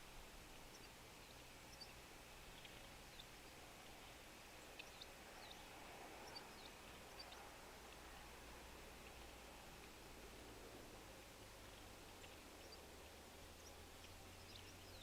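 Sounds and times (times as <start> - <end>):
steady background hiss: 0.0 - 15.0
small birds chipping and calling: 0.5 - 8.3, 11.6 - 15.0.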